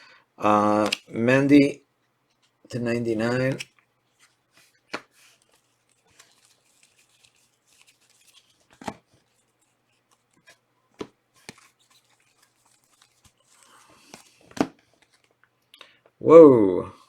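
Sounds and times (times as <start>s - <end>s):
cards sliding and rustling: 0.7s - 1.1s, 2.3s - 15.4s.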